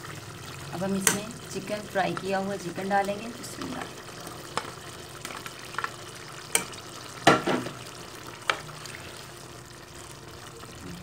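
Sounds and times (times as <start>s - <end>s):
pot sizzling: 0.0s - 11.0s.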